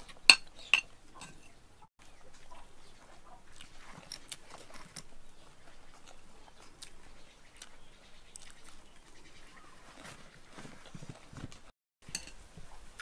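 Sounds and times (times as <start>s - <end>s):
person chewing food: 2.4s - 9.0s.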